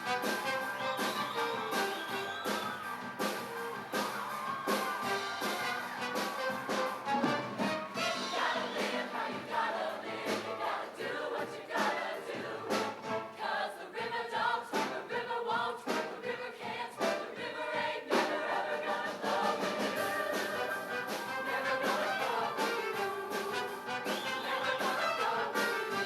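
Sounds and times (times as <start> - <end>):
live band with drums: 0.0 - 11.0, 11.8 - 13.4, 18.1 - 26.0
choir singing: 0.0 - 26.0.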